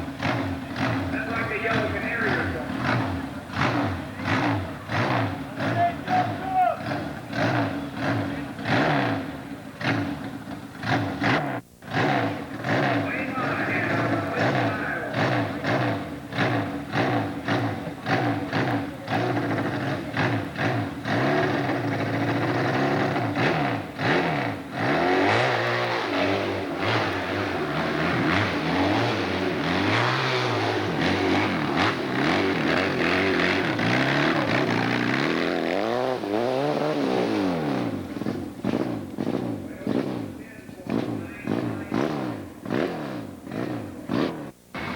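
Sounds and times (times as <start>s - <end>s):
motorcycle engines revving: 0.0s - 44.9s.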